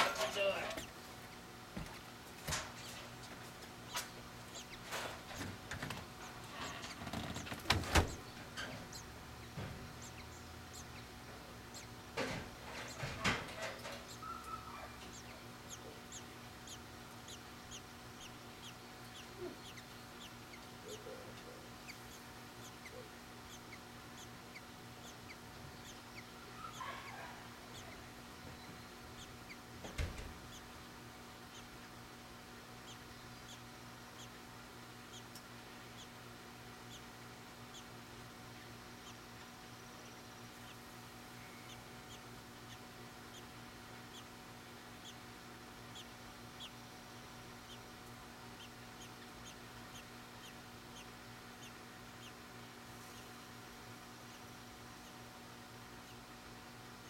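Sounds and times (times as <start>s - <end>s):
low steady hum: 0.0s - 57.0s
high bird chirps: 8.1s - 11.1s, 11.7s - 12.0s, 13.8s - 21.1s, 21.8s - 30.7s.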